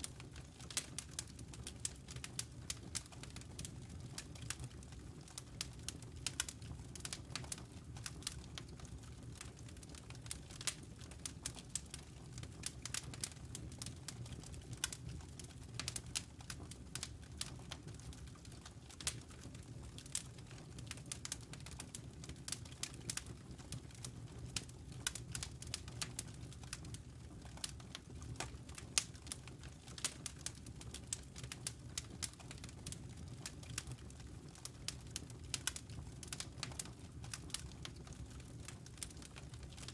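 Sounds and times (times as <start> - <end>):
campfire crackling and popping: 0.0 - 39.9
low rumble of burning fire: 0.0 - 39.9.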